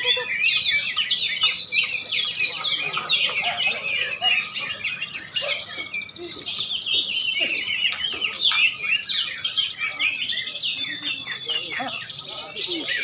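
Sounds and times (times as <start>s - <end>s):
songbirds chirping and whistling: 0.0s - 13.0s.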